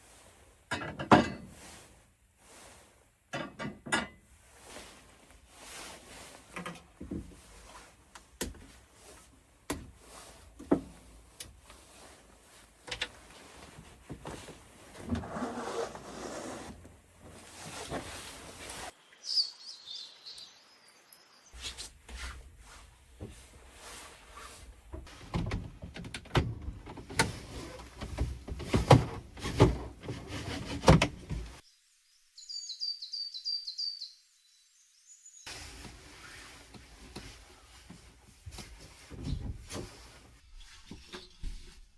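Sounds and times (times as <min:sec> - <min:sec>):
knocks and handling clatter: 0:00.7 - 0:01.6, 0:24.8 - 0:31.6
small birds chirping: 0:19.0 - 0:21.6, 0:31.6 - 0:35.5.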